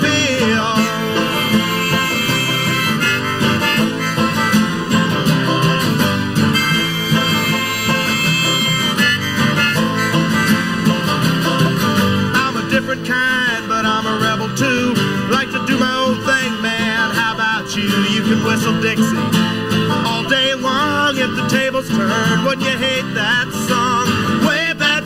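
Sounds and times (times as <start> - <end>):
strummed acoustic guitars: 0.0 - 25.0
warbling lead melody: 0.8 - 11.8.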